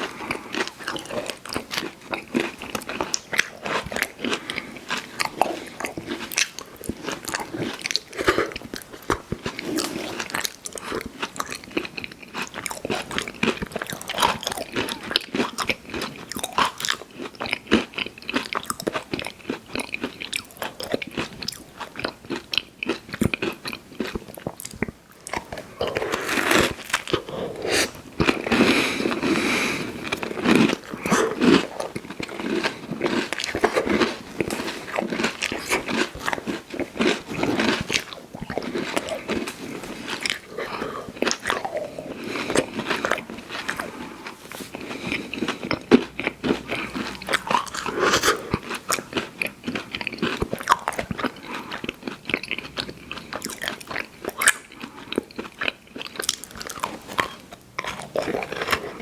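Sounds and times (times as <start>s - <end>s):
crunching and chewing candy: 0.0s - 59.0s.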